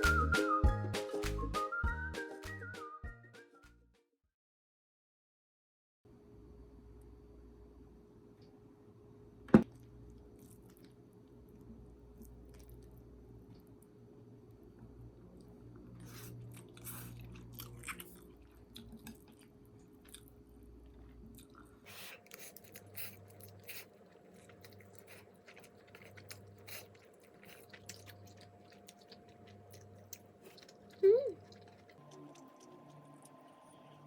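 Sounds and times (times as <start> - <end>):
person chewing crunchy food: 10.1 - 13.7, 15.7 - 34.0.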